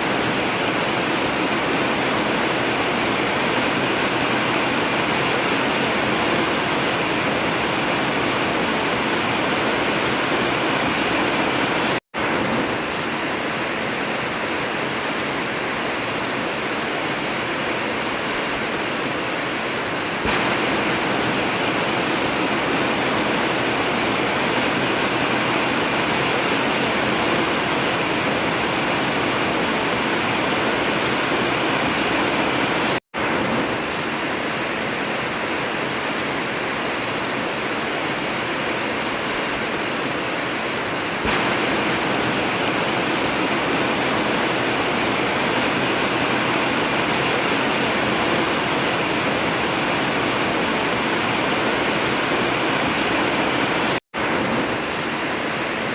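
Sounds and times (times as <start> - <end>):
heavy rain on a metal roof: 0.0 - 55.9.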